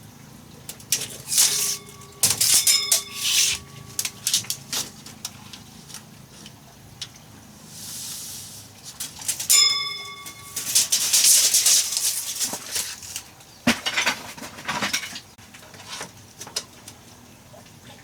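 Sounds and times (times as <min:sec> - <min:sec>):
scraping and handling noise: 0:00.6 - 0:16.8
metal object clanking: 0:00.7 - 0:05.7, 0:09.0 - 0:12.8.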